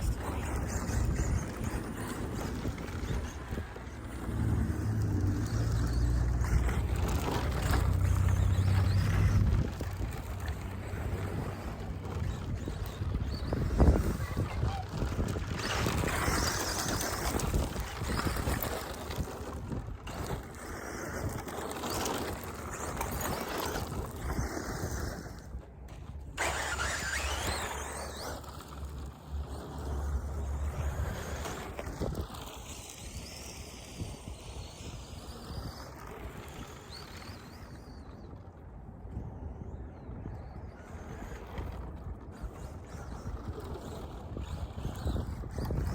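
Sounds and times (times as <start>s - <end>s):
electric motor whine: 0.0s - 19.2s
tyres scrabbling on dirt: 0.0s - 38.8s, 40.6s - 45.9s
wind rumbling on microphone: 0.0s - 45.9s.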